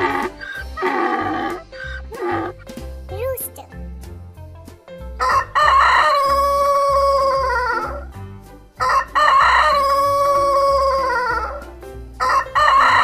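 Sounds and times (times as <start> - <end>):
rooster crowing: 5.2 - 8.0, 8.8 - 11.6, 12.2 - 13.0.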